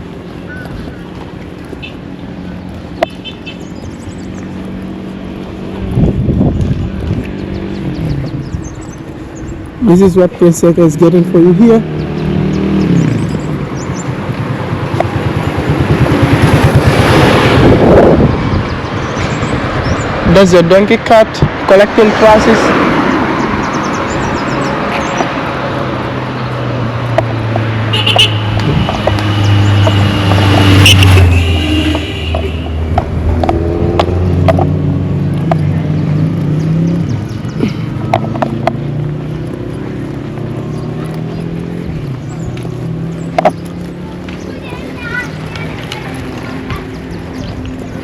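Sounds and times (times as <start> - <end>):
tyre and wind noise: 0.0 - 9.9, 11.8 - 20.4, 22.6 - 48.0
hooves clopping: 0.0 - 10.2, 23.2 - 48.0
vehicle passing by: 0.0 - 48.0.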